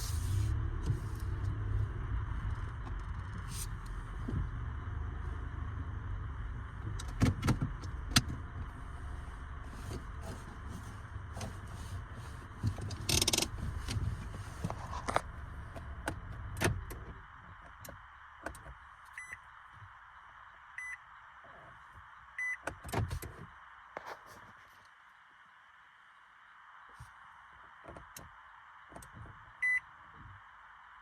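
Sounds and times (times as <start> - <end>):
low rumble: 0.0 - 17.2.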